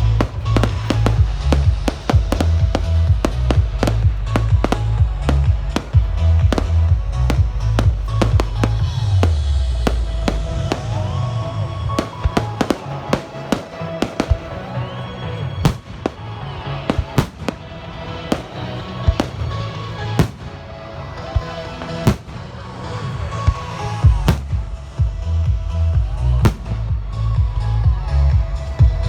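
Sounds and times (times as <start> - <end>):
fireworks bangs and cracks: 0.0 - 29.0
music with heavy bass: 0.0 - 29.0.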